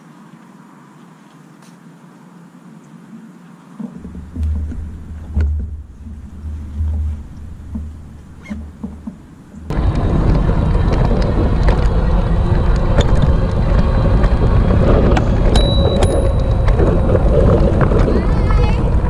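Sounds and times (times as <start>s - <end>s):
wind buffeting microphone: 3.8s - 19.0s.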